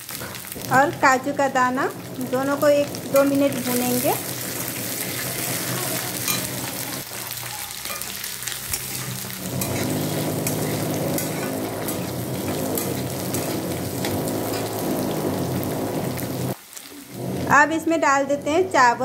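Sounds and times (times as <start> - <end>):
food sizzling in hot ghee: 0.0 - 19.0
spatula scraping a pan: 2.1 - 7.0, 7.8 - 16.6.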